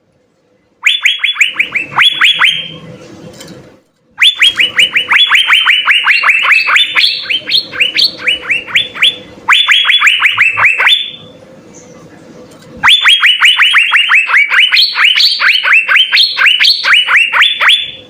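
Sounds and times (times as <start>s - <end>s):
bird whistling sharp notes: 4.2s - 11.2s.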